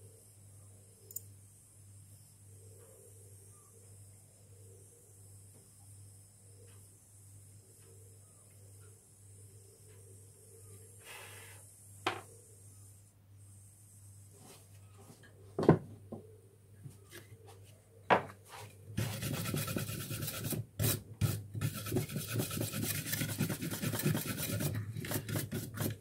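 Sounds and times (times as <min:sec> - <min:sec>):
wire brush scrubbing metal: 0:19.0 - 0:26.0.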